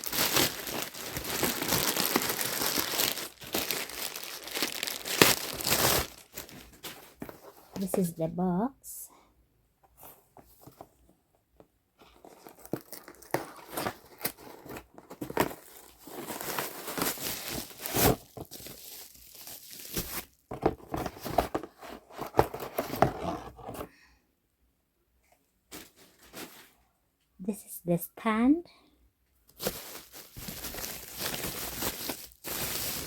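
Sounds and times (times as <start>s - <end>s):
cardboard box being torn open: 4.7s - 6.1s, 12.3s - 18.6s.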